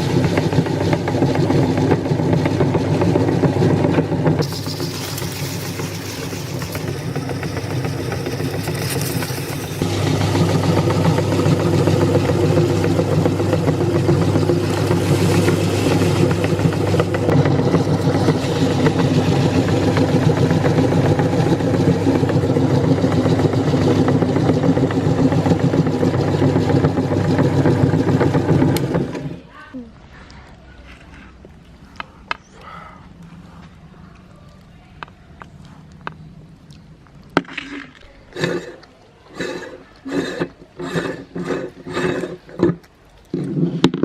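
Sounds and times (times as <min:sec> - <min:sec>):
electric meat grinder grinding chips: 0:00.0 - 0:29.4.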